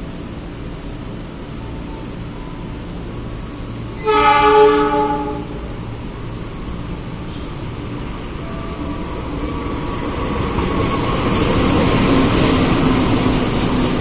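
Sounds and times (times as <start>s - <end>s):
low rumble of railway noise: 0.0s - 14.0s
train horn blast: 4.0s - 5.7s.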